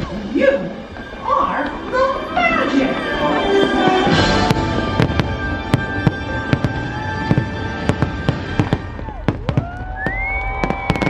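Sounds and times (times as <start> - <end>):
fireworks bangs: 3.4 - 11.0.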